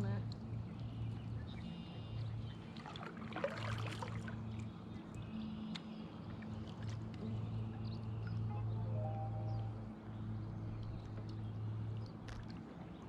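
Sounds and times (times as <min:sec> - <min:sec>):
low steady hum: 0:00.0 - 0:13.0
paddle splashing water: 0:02.2 - 0:05.1, 0:06.2 - 0:10.0, 0:10.6 - 0:13.0
bird chirps: 0:08.0 - 0:10.9.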